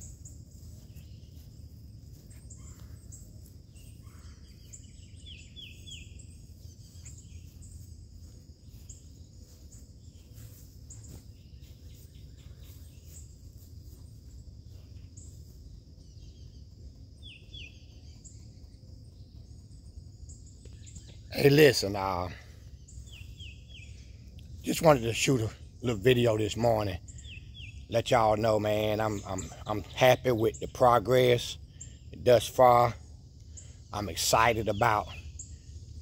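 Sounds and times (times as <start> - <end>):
low background rumble: 0.0 - 21.4
birds chirping: 0.0 - 36.0.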